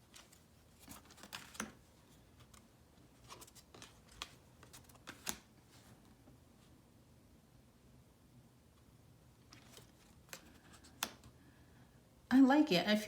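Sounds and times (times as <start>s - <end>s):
cards clicking and tapping: 0.2s - 1.8s, 3.3s - 5.5s, 9.5s - 11.3s.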